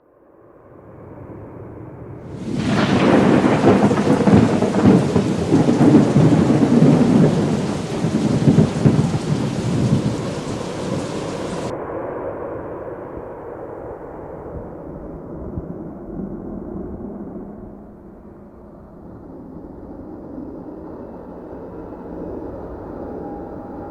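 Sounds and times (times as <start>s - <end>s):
rain falling: 2.3s - 11.7s
thunder rolling: 2.3s - 23.9s.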